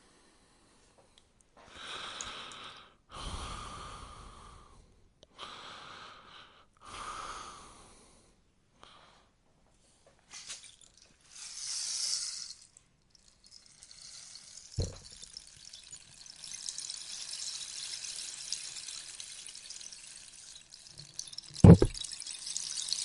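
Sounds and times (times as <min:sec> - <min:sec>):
rainstick beads pattering: 0:10.3 - 0:23.0.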